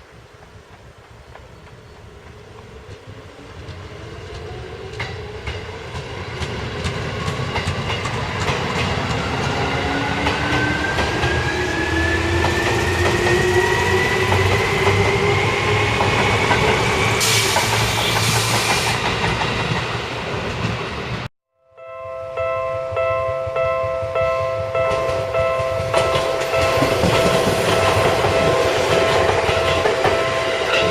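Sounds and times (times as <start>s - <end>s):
wheels clicking over rail joints: 0.4s - 11.5s.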